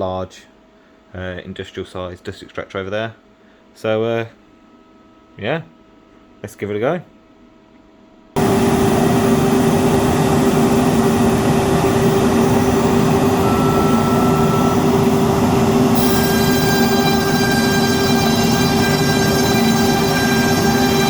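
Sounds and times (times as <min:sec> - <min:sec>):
dust extractor running: 0:08.4 - 0:21.0
high whining tones: 0:08.4 - 0:21.0.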